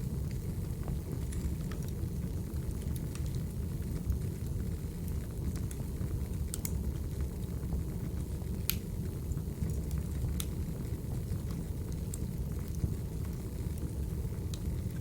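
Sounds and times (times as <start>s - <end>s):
wood fire crackling: 0.0s - 15.0s
sharp pops of fire: 8.6s - 8.9s.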